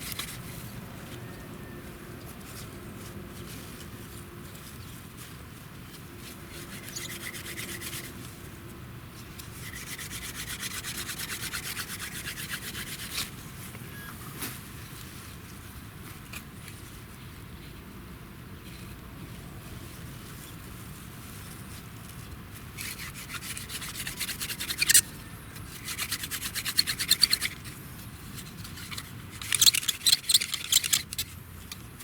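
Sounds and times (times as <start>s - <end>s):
wooden branch rasping against wood: 6.2s - 8.2s, 9.4s - 13.3s, 22.8s - 31.3s.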